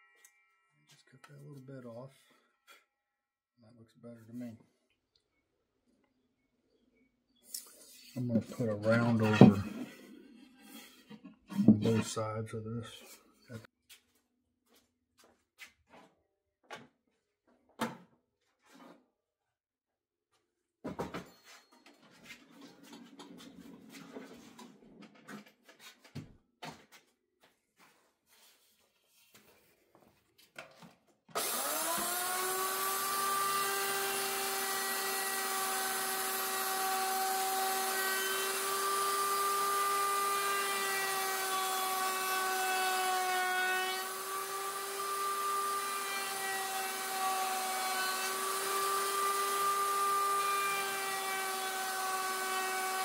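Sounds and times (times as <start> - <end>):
router high whine cutting wood: 31.4 - 53.0.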